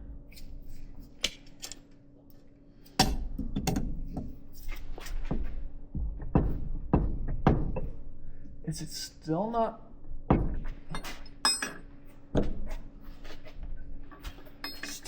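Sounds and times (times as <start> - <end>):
metal tools knocking: 10.9 - 11.8, 14.6 - 15.0.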